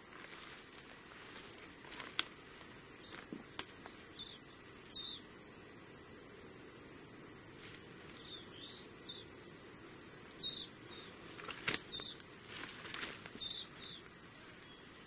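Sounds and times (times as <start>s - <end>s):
low background hiss: 0.0s - 15.0s
small bird chirping: 1.4s - 5.9s, 8.0s - 15.0s
twigs snapping underfoot: 1.8s - 4.0s, 11.2s - 14.0s.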